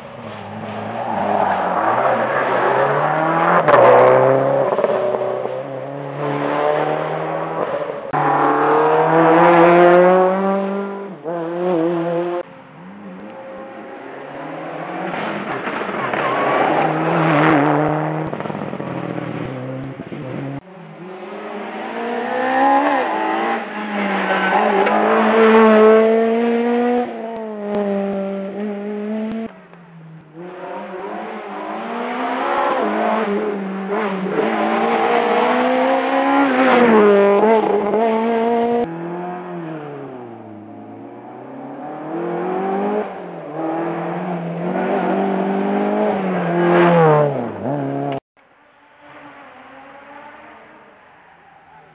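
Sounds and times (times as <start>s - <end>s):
rally car engines revving: 0.0s - 48.2s.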